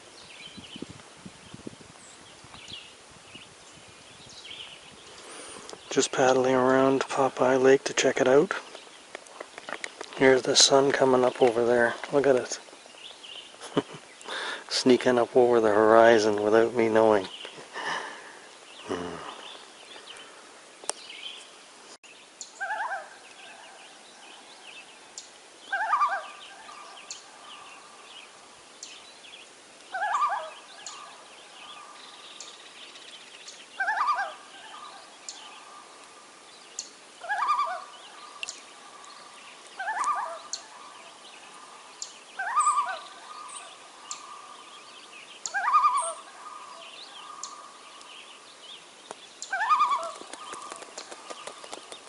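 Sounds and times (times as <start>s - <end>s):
bird quavering calls: 22.6s - 23.7s, 25.7s - 27.9s, 29.9s - 32.0s, 33.8s - 35.9s, 37.2s - 39.2s, 39.8s - 44.6s, 45.4s - 48.1s, 49.4s - 52.0s.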